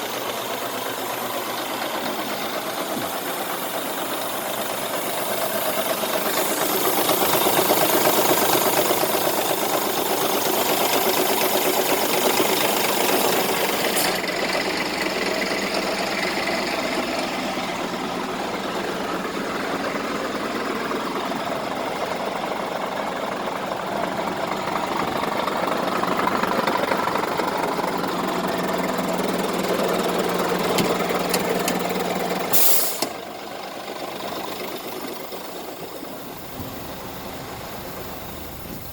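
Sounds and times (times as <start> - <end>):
diesel truck engine running: 0.0 - 38.9
short sharp air hiss: 32.5 - 33.2.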